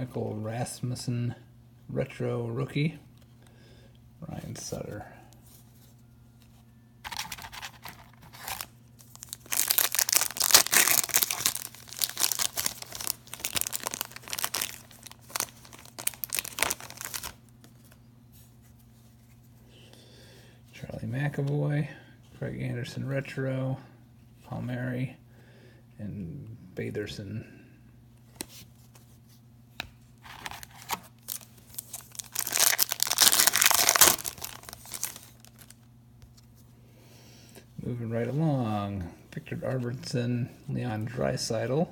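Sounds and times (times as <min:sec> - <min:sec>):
wrapper tearing and crinkling: 0:07.1 - 0:17.4, 0:30.2 - 0:35.8.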